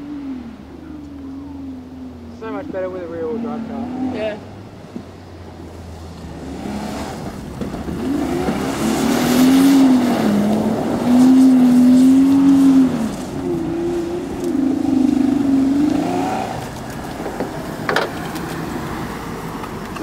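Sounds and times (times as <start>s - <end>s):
car engine revving hard: 6.2s - 16.8s.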